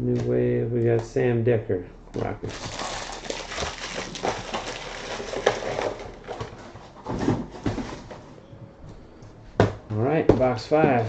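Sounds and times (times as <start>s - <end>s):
card packaging crinkling: 2.5s - 7.0s.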